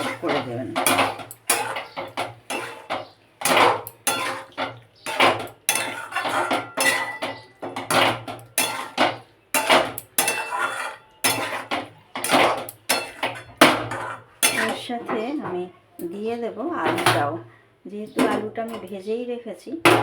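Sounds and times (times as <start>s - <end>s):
spatula scraping metal pan: 0.0s - 15.1s.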